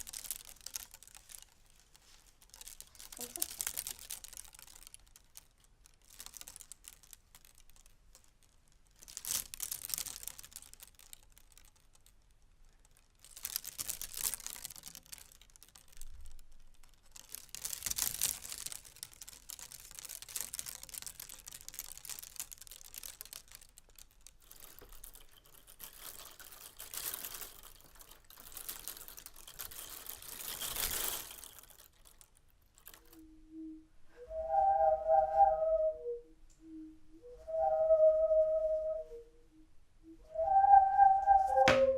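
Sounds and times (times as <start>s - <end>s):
objects crinkling and clicking: 0.0s - 33.5s.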